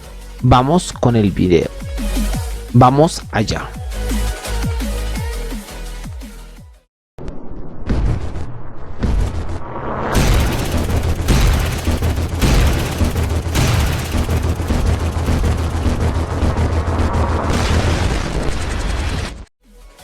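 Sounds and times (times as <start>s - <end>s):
booming gunfire-like blasts: 7.8s - 19.5s
pulsing deep bass: 10.2s - 17.8s.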